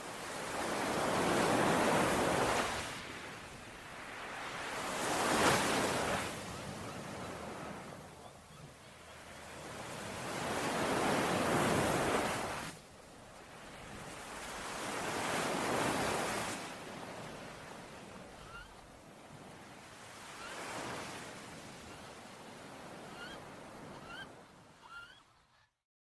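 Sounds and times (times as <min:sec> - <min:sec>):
sea waves washing onto shore: 0:00.0 - 0:08.0, 0:09.3 - 0:23.0
faint bird chirps: 0:18.4 - 0:18.8, 0:23.0 - 0:25.7.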